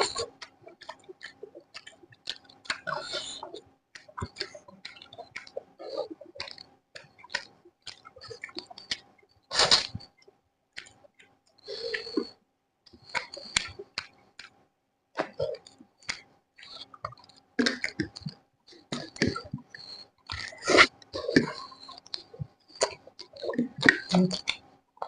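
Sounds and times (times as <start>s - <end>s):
chewing with wet crunches: 0.0s - 10.2s, 15.2s - 24.6s.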